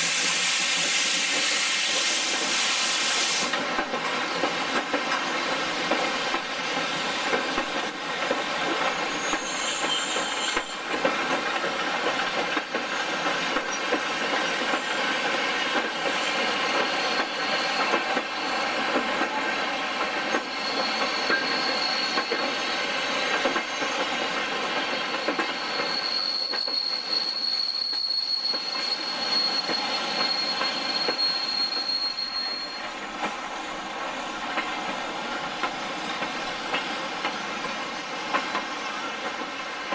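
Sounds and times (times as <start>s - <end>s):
train wheels rolling on rails: 0.0s - 39.9s
high-pitched wheel squeal: 8.0s - 11.7s, 20.3s - 22.8s, 25.3s - 33.1s.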